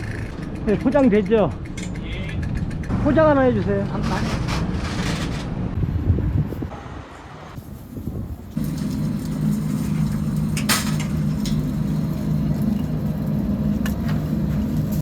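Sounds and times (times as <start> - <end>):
low motor hum: 8.5 - 15.0.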